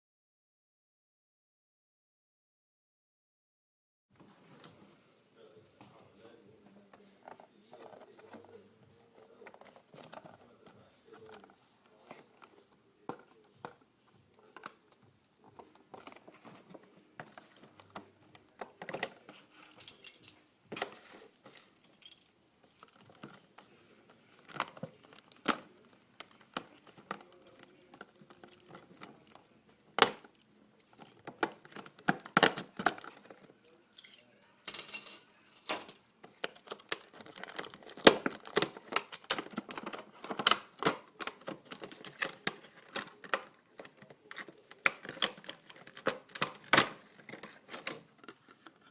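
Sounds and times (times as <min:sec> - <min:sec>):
plastic and cardboard clicks and knocks: 0:30.9 - 0:33.5, 0:36.2 - 0:48.9
packaging crinkling: 0:36.4 - 0:40.4.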